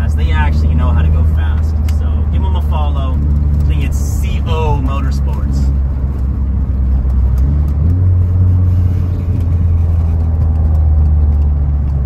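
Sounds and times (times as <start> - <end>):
car engine from inside cabin: 0.0 - 12.0
road noise: 0.0 - 12.0.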